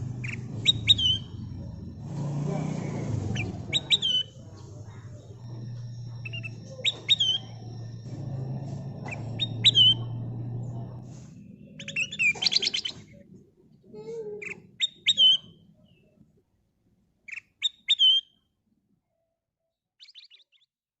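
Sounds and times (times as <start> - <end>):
bulbul whistled chirps and trills: 0.0 - 13.4, 14.4 - 16.1, 17.3 - 18.4, 20.0 - 20.7
low steady hum: 0.0 - 14.2.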